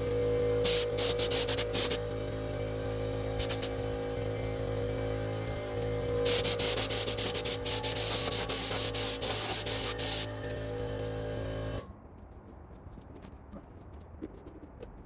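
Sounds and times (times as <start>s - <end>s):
steady machine hum: 0.0s - 11.9s
loud hiss starting and stopping: 0.6s - 2.0s, 3.4s - 3.8s, 6.2s - 10.3s.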